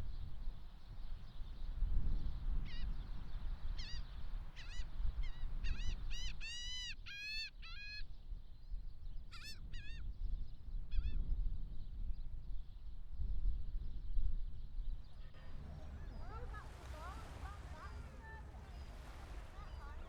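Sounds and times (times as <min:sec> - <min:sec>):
gulls crying: 0:15.3 - 0:20.0.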